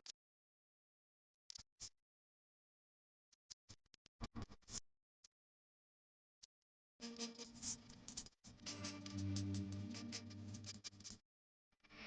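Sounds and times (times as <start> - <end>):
music: 7.0 - 11.2.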